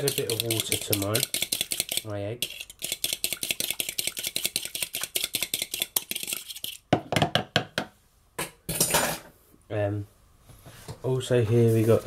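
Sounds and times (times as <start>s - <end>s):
fork beating eggs in a bowl: 0.0s - 6.9s.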